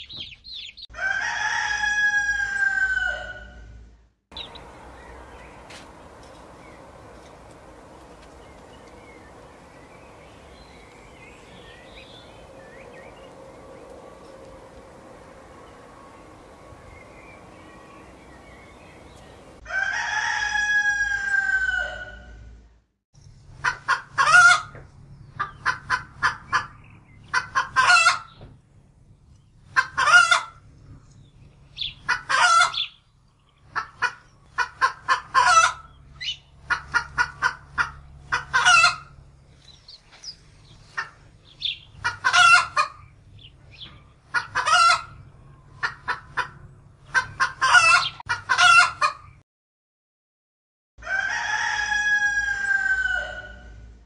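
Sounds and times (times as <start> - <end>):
roosters crowing: 0.9 - 3.7, 4.4 - 22.4, 36.7 - 39.2, 44.2 - 46.0, 47.1 - 49.1, 51.0 - 53.9
drawn-out gliding sound: 4.4 - 19.6
hens clucking and cackling: 23.6 - 24.8, 25.4 - 28.4, 29.7 - 30.7, 31.8 - 32.9, 33.6 - 39.2, 40.8 - 43.1, 44.2 - 49.4, 51.0 - 53.8.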